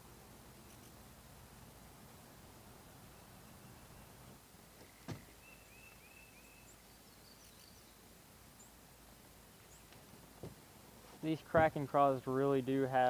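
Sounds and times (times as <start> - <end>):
faint outdoor hiss: 0.0 - 13.0
bird chirping: 3.0 - 8.8, 9.5 - 10.0.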